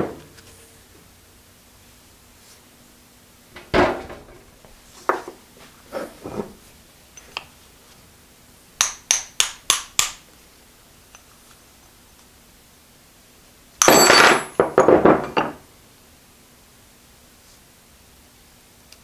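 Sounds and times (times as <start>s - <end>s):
metal parts clunking: 13.8s - 15.6s.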